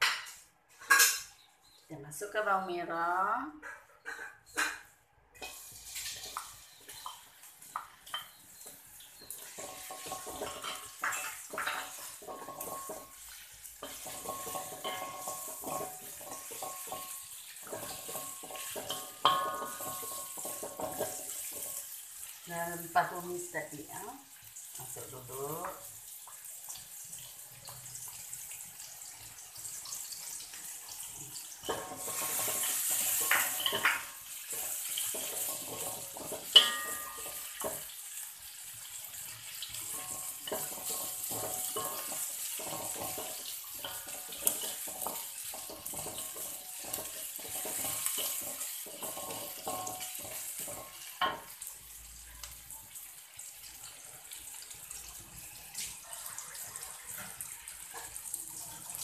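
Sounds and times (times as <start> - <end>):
shallots sizzling in hot oil: 4.5 - 59.0
wooden spatula scraping a wok: 31.7 - 38.0, 39.0 - 51.2.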